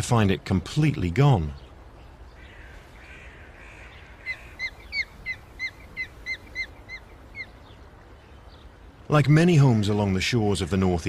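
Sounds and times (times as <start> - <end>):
osprey chirping: 1.6 - 8.9.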